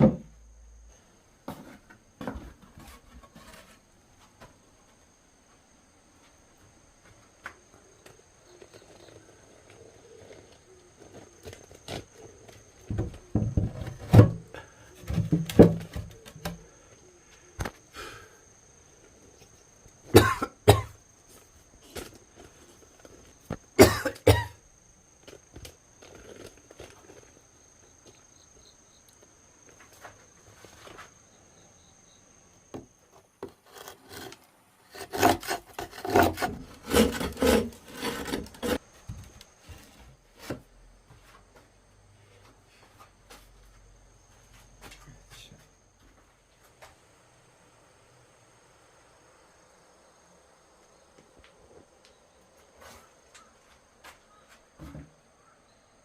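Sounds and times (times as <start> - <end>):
knocks and scraping: 0.0 - 0.4, 1.4 - 5.0, 7.1 - 16.7, 32.7 - 41.6, 54.0 - 55.2.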